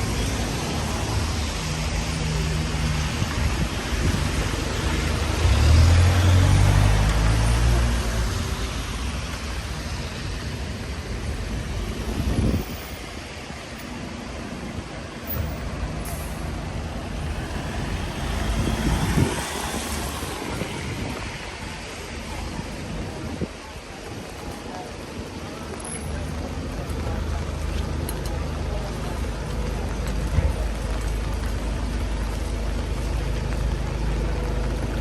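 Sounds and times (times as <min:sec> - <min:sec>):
street traffic noise: 0:00.0 - 0:35.0
large vehicle engine passing: 0:04.1 - 0:08.6, 0:17.0 - 0:21.8.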